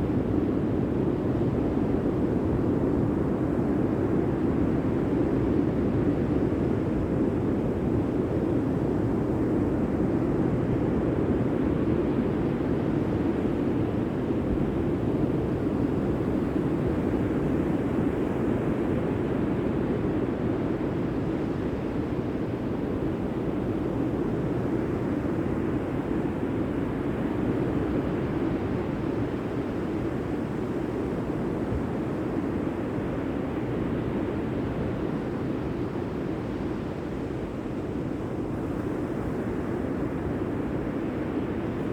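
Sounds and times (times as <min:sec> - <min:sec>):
wind: 0:00.0 - 0:41.9.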